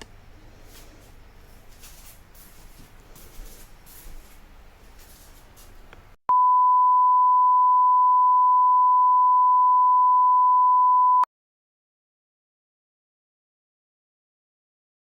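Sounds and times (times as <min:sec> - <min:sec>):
steady electronic beep: 0:06.3 - 0:11.3.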